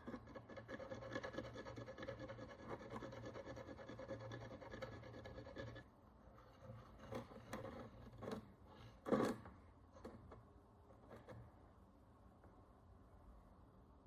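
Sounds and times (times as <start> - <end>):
tool scraping a coin: 0.0 - 5.9.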